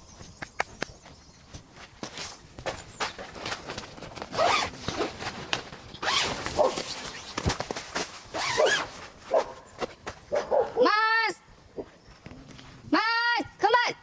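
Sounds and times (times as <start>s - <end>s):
zipper being pulled: 4.3s - 5.3s, 6.0s - 7.4s, 8.3s - 9.0s.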